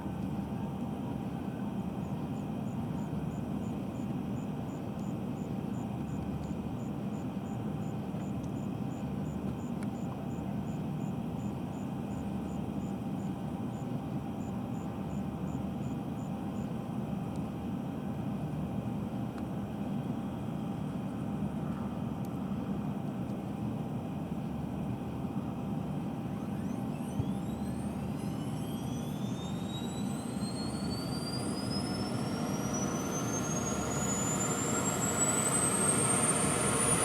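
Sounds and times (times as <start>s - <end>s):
helicopter engines rumble and whine: 0.0s - 37.0s.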